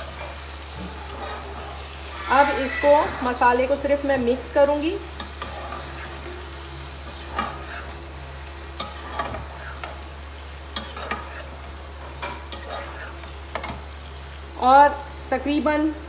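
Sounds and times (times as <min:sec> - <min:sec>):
liver and onions sizzling: 0:00.0 - 0:16.0
metal spoon scraping a pot: 0:10.8 - 0:11.6, 0:12.2 - 0:13.8.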